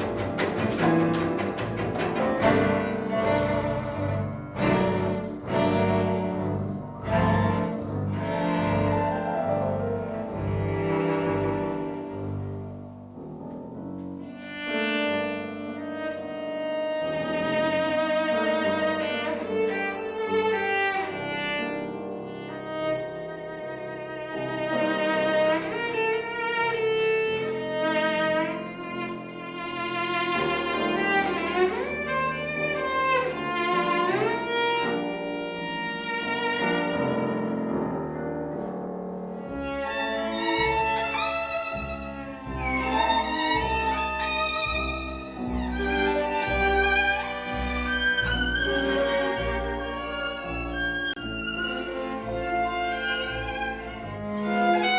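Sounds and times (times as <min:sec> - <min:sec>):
chamber ensemble playing: 0:00.0 - 0:12.6, 0:39.3 - 0:54.9
cello: 0:00.0 - 0:54.9
violin: 0:00.0 - 0:54.9.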